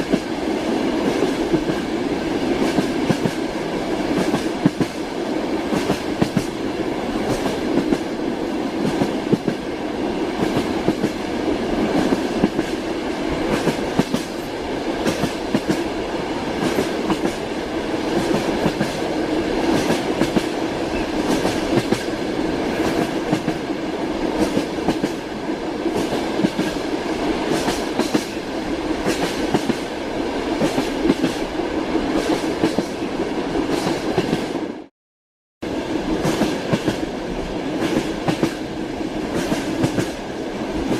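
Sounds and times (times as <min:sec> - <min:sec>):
train wheels clattering over rails: 0:02.5 - 0:06.6, 0:07.2 - 0:09.6, 0:10.3 - 0:16.0, 0:16.6 - 0:23.7, 0:24.3 - 0:25.2, 0:25.8 - 0:26.8, 0:27.4 - 0:28.4, 0:29.0 - 0:29.8, 0:37.7 - 0:40.9.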